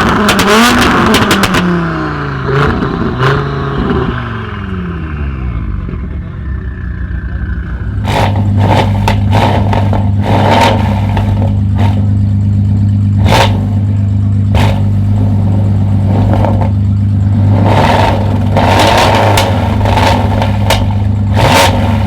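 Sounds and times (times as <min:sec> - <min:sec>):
exhaust pops and bangs: 0:00.0 - 0:01.7, 0:08.0 - 0:22.0
car engine revving: 0:00.0 - 0:22.0.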